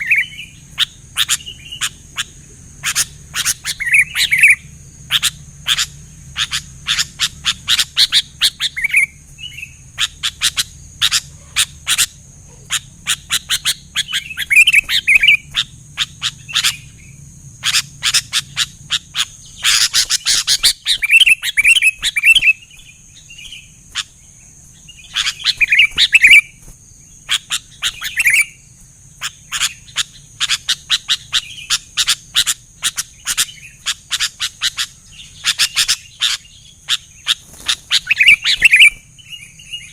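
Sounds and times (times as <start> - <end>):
birds chipping and warbling: 0.0 - 39.9
steady high-pitched whine: 0.0 - 39.9.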